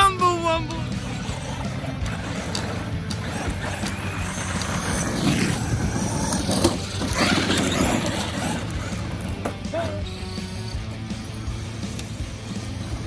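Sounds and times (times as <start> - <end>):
toy truck motor and tyres on dirt: 0.0 - 13.0
clicks: 0.6 - 5.6, 11.8 - 12.2.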